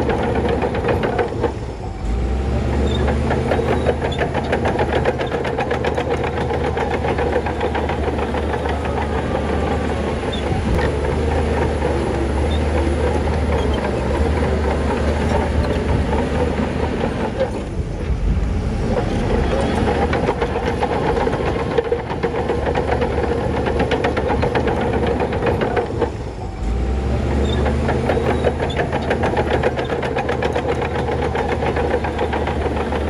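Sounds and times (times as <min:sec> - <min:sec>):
heavy diesel engine rumbling: 0:00.0 - 0:33.0
fast even clatter: 0:18.9 - 0:26.2, 0:27.5 - 0:33.0.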